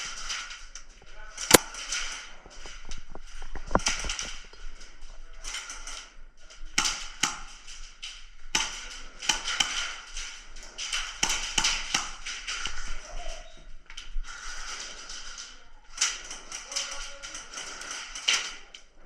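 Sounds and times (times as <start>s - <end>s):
airsoft guns firing: 11.2s - 12.6s.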